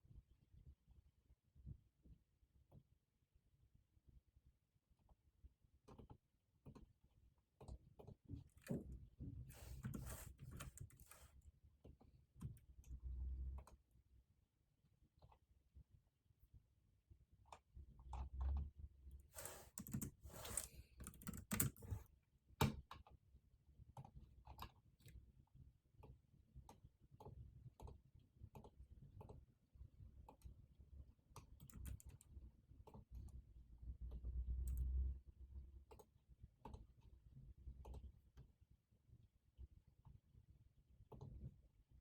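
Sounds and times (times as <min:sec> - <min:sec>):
keyboard typing: 0:09.5 - 0:11.3, 0:19.4 - 0:22.0, 0:31.6 - 0:32.2
rustling noise: 0:09.5 - 0:11.4, 0:19.4 - 0:20.8.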